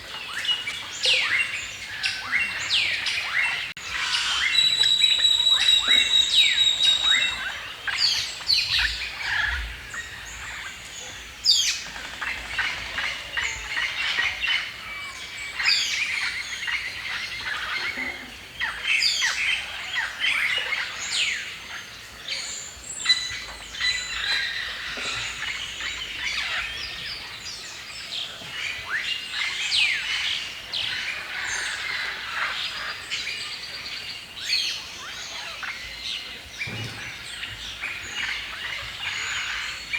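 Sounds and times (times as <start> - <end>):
birds singing and chirping: 0.0 - 39.9
high bird whistle: 4.2 - 7.4.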